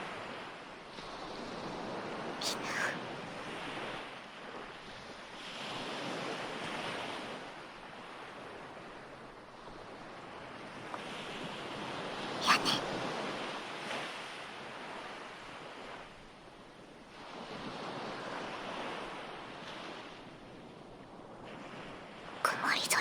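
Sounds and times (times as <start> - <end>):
ocean waves surging and washing back: 0.0 - 23.0.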